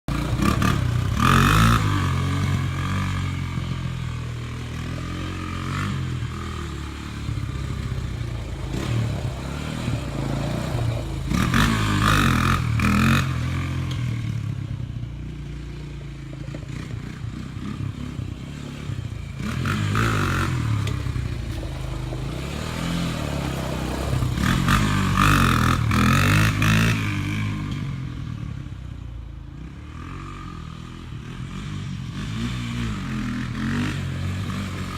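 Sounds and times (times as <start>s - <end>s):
atv engine revving: 0.1s - 34.9s.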